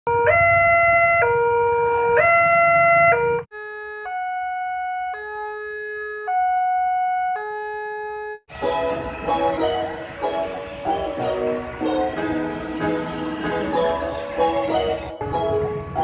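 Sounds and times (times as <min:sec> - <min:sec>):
two-tone crossing alarm: 0:00.1 - 0:16.0
low traffic rumble: 0:08.5 - 0:16.0.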